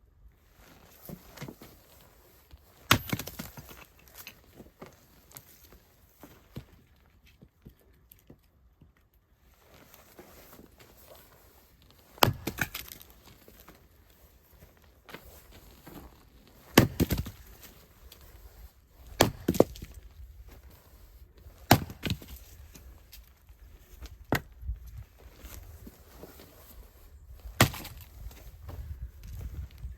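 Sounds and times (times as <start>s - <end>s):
axe splitting firewood: 2.7s - 4.4s, 12.0s - 13.8s, 15.1s - 24.8s, 27.4s - 28.8s.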